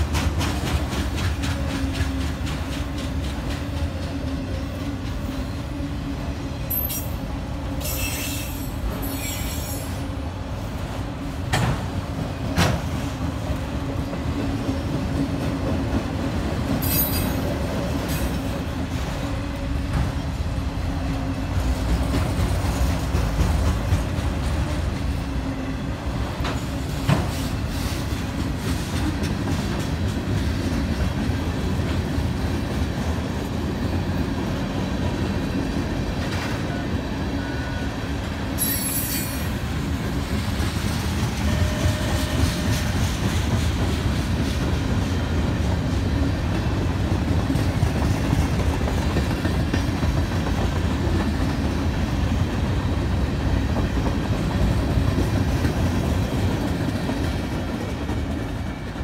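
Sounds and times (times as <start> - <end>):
steel wheels rumbling on rail: 0.0 - 59.0
high wheel squeals: 7.8 - 10.0, 38.6 - 39.6.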